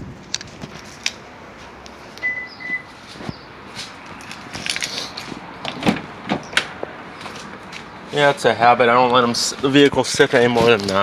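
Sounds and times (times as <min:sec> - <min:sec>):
footsteps: 0:00.5 - 0:06.0.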